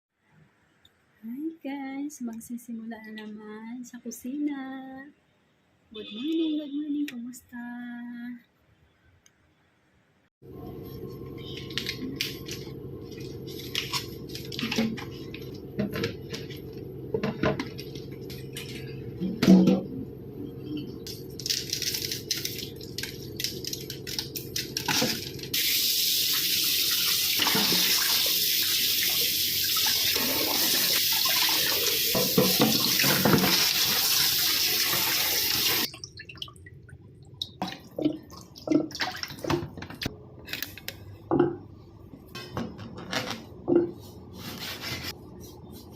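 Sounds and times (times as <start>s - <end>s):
utensils and dishes clinking: 17.4s - 19.9s
tap running into a sink: 32.1s - 34.2s.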